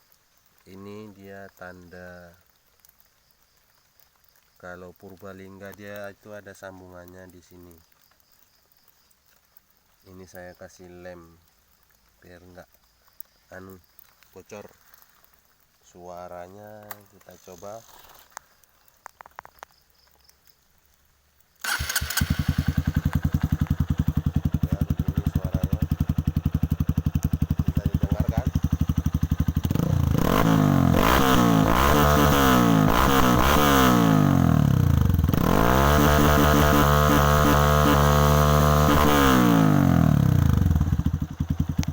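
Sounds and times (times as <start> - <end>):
motorcycle engine revving: 21.6 - 41.9
motorcycle engine idling: 21.7 - 33.6, 34.2 - 41.9.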